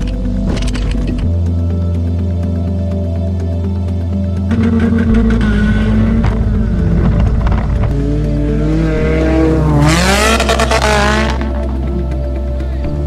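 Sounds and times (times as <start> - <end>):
background music: 0.0 - 13.0
car engine revving hard: 7.9 - 11.5.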